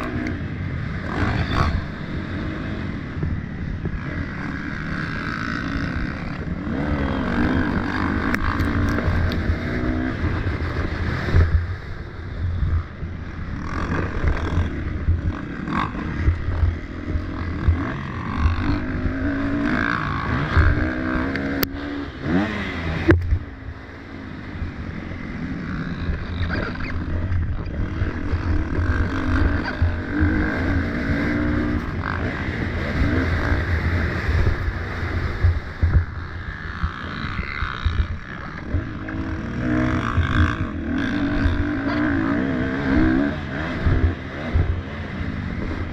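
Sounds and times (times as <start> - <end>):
dirt bike engines revving: 0.0 - 45.9.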